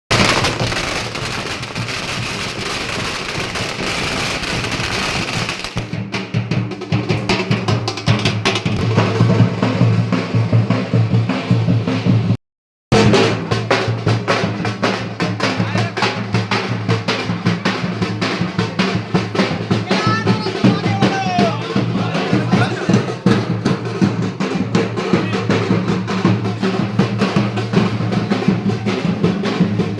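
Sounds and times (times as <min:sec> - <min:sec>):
firecrackers crackling: 0:00.1 - 0:06.0
drum beats: 0:00.1 - 0:29.9.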